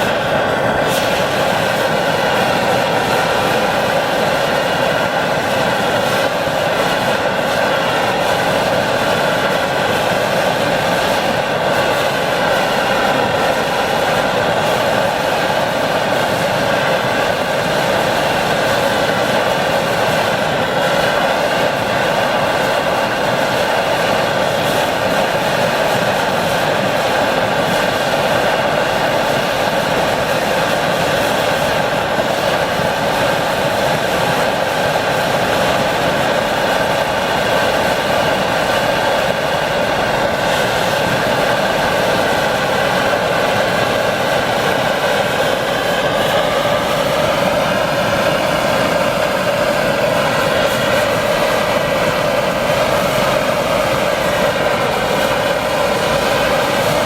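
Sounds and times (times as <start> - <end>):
pressure stove burner roaring: 0.0 - 57.0.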